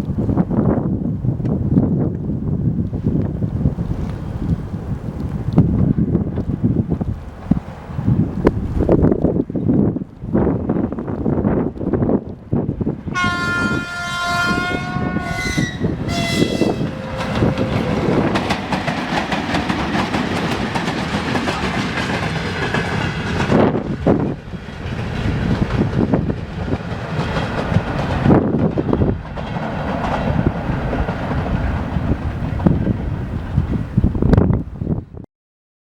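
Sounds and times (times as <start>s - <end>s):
train rolling rumble: 0.1s - 35.1s
locomotive horn blasts: 13.1s - 18.3s
wheels knocking over rail joints: 16.1s - 32.8s.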